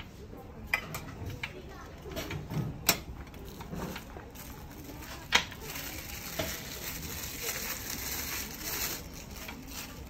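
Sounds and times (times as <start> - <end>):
packaging rustling and crinkling: 3.4 - 10.0.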